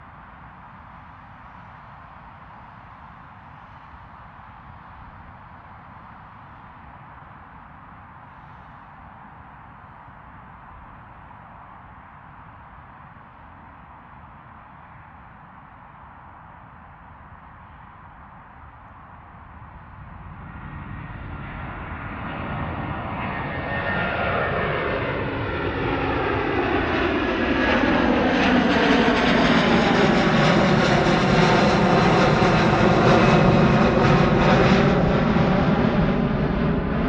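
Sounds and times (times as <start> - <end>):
jet engines roaring: 20.2 - 37.0.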